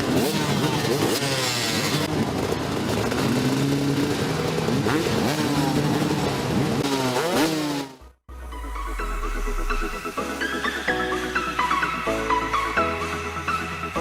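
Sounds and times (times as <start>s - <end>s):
dirt bike engines revving: 0.0s - 8.1s.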